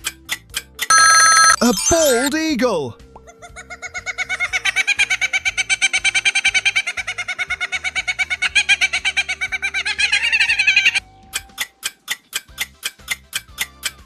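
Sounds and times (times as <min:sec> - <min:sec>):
kookaburra chuckling call: 0:03.4 - 0:11.0.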